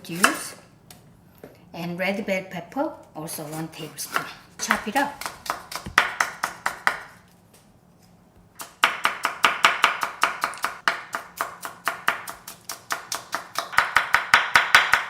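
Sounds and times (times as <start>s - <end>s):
knife chopping on cutting board: 4.0s - 7.1s, 8.6s - 15.0s.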